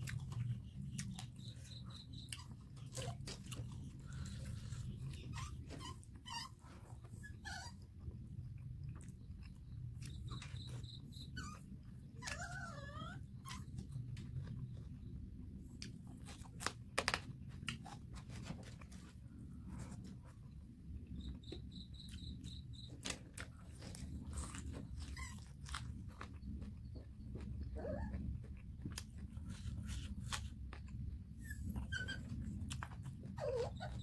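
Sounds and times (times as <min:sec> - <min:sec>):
chewing and lip-smacking: 0:00.0 - 0:06.2, 0:07.1 - 0:11.2, 0:21.4 - 0:31.3
low steady hum: 0:00.0 - 0:34.0
faint high-pitched chirps: 0:09.1 - 0:11.6, 0:21.0 - 0:23.1.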